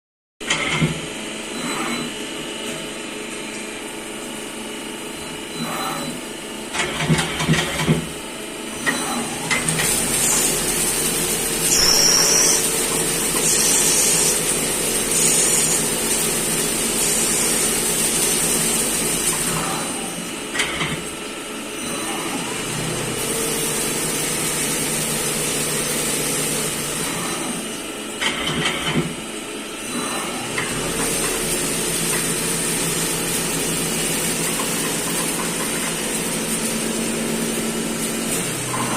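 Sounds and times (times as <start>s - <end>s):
loud machine bursts: 11.4s - 19.0s.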